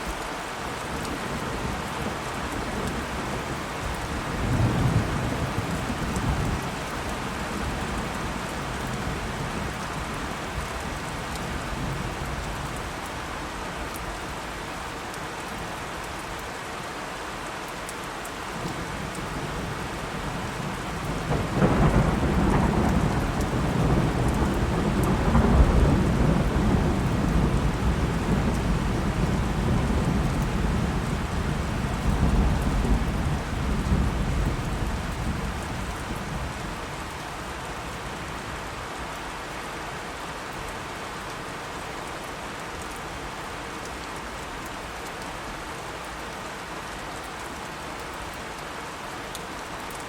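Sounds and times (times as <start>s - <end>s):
heavy rain: 0.0s - 50.0s
rolling thunder: 21.3s - 36.8s.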